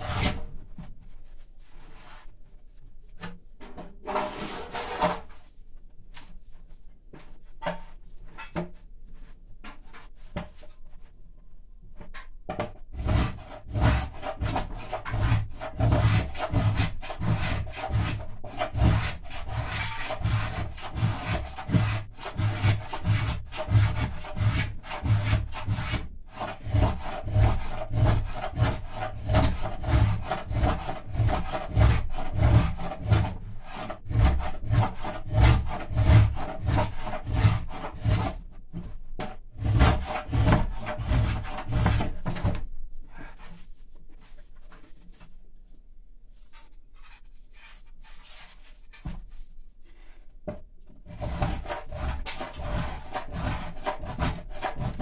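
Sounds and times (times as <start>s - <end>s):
hand tool scraping wood: 0.0s - 0.5s, 4.0s - 5.5s, 12.6s - 45.3s, 46.4s - 55.0s.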